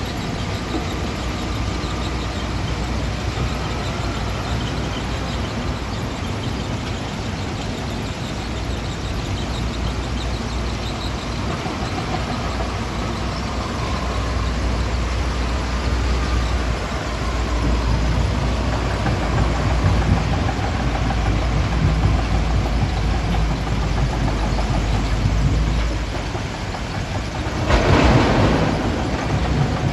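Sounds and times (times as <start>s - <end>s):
diesel engine rumble: 0.0s - 29.9s.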